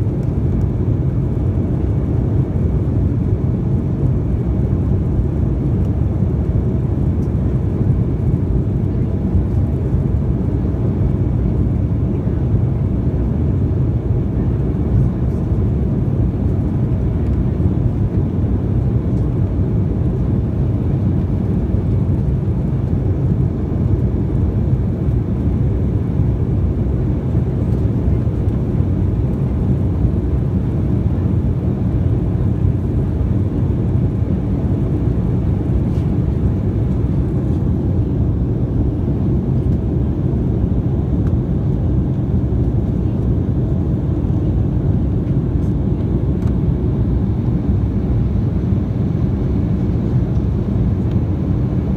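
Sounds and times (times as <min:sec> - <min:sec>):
jet airliner cabin rumble: 0:00.0 - 0:51.9.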